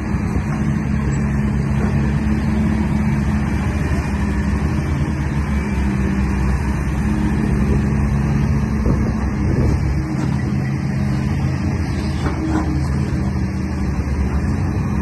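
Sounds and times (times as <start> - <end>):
heavy truck engine droning: 0.0 - 15.0.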